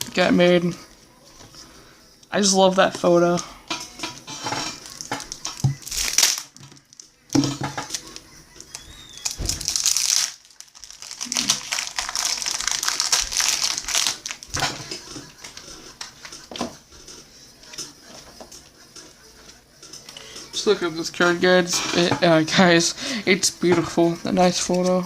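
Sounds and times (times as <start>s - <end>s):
trading cards rustling: 4.8s - 7.1s, 7.8s - 16.4s.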